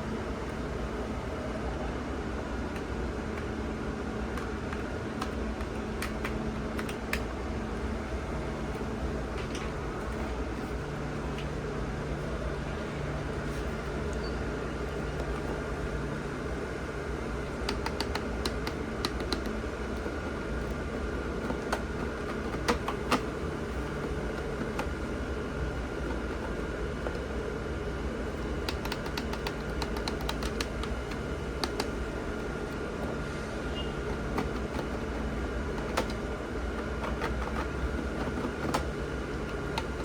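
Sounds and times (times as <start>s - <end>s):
sharp clicks: 28.6s - 32.0s.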